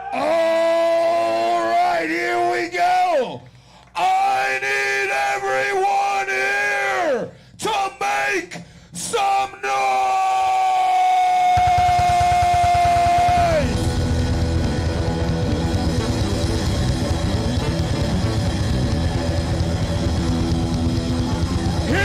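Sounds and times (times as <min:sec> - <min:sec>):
person yelling: 0:00.0 - 0:03.4, 0:04.0 - 0:13.9, 0:21.8 - 0:22.0
fast rock music: 0:11.6 - 0:22.0.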